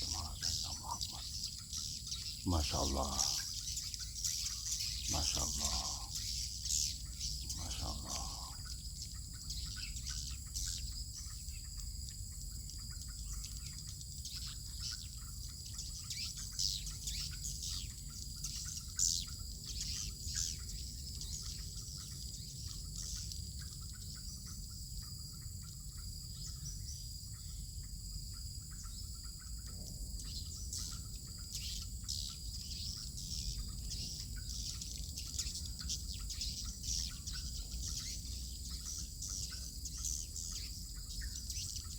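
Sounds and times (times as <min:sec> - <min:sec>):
high-pitched insect drone: 0:00.0 - 0:41.9
swiftlets twittering: 0:05.0 - 0:06.2.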